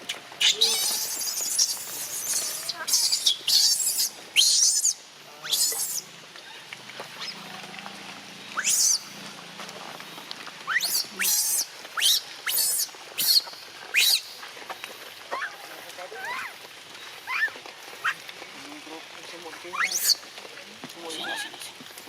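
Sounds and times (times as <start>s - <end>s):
newborn animal squealing: 0.4s - 6.0s, 8.6s - 9.0s, 19.8s - 20.2s.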